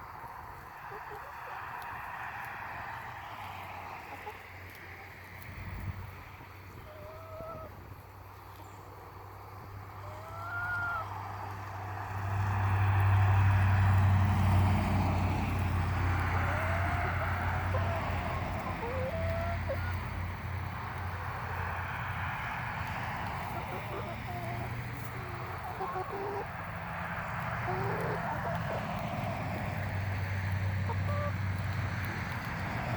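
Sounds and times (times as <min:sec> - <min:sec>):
chickens clucking and squawking: 0:00.4 - 0:11.6, 0:12.5 - 0:32.9
low engine hum: 0:07.9 - 0:32.9.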